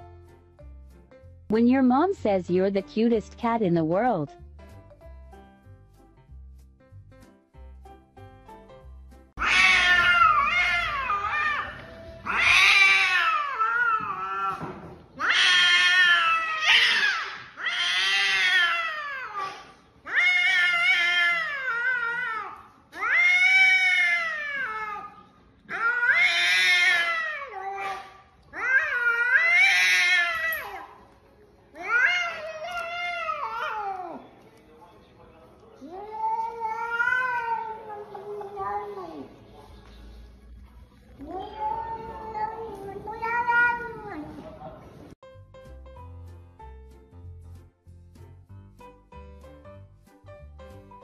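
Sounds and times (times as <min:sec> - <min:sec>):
cat yowling: 0:09.4 - 0:14.6, 0:15.2 - 0:31.0, 0:31.8 - 0:34.3, 0:35.8 - 0:39.3, 0:41.2 - 0:44.3.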